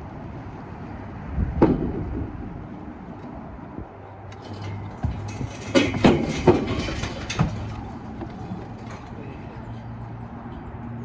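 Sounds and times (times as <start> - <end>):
bricks knocking and clattering: 4.4 - 8.9.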